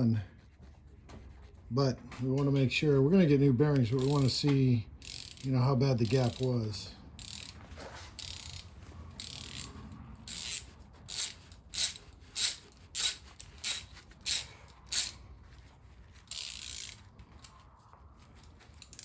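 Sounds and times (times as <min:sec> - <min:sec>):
ratchet wrench clicking: 0:03.7 - 0:15.2, 0:16.1 - 0:17.6, 0:18.4 - 0:19.0.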